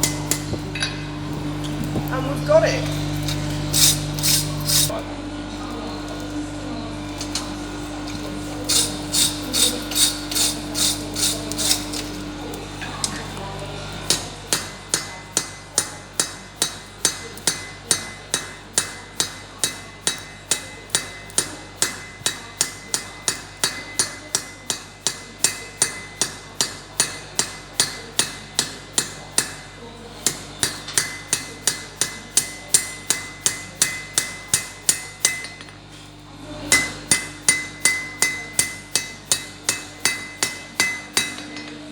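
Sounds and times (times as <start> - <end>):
hammer striking iron on anvil: 0.0 - 1.0, 8.1 - 13.4, 14.0 - 35.8, 36.7 - 41.8.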